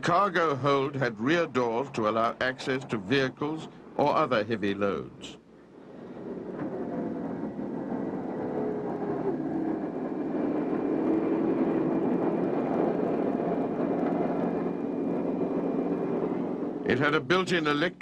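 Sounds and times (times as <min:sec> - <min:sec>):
helicopter engines and rotors: 0:05.6 - 0:17.9.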